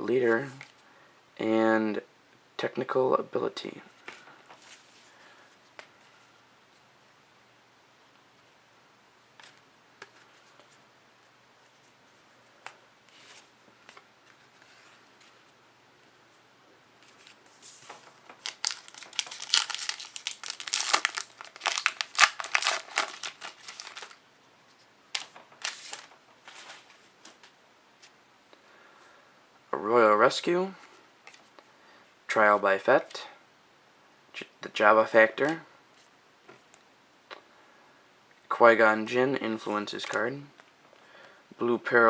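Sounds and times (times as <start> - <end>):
wrapper tearing and crinkling: 17.9 - 24.2, 25.1 - 26.1.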